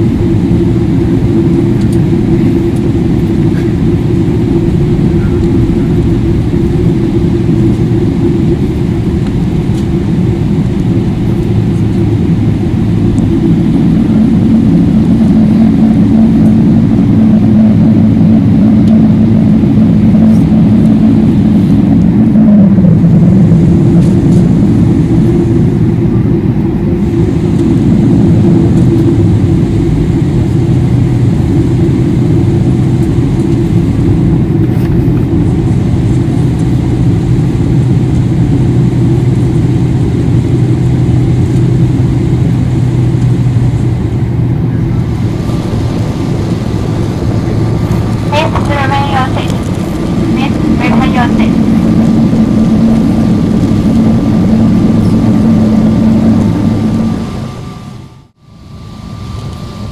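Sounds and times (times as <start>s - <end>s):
airliner cabin engine rumble: 0.0s - 59.9s
hum dropping in pitch: 35.4s - 59.9s.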